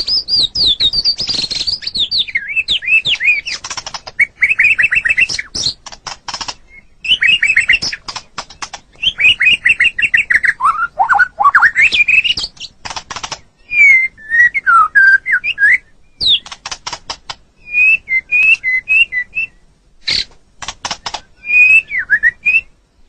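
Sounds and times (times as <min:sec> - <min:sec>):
bird singing whistled phrases: 0:00.0 - 0:03.6, 0:04.2 - 0:05.8, 0:06.7 - 0:08.0, 0:09.0 - 0:12.5, 0:13.6 - 0:16.5, 0:17.6 - 0:20.3, 0:21.3 - 0:22.8
sharp clicking bird notes: 0:00.0 - 0:13.9, 0:15.2 - 0:19.0, 0:20.0 - 0:22.6.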